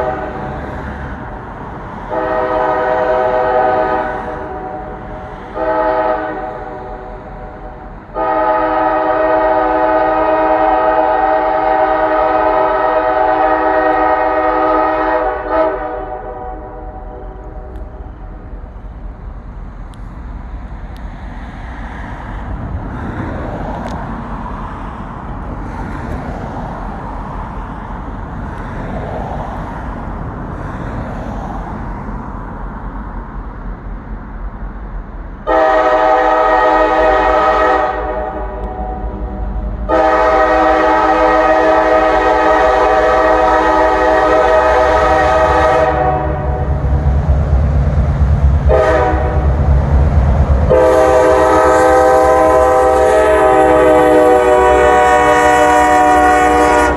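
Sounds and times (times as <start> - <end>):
locomotive air horn blasts: 0.0 - 0.7, 2.0 - 18.2, 35.4 - 47.1, 48.6 - 49.7, 50.6 - 56.9
locomotive engine rumbling: 0.0 - 56.9.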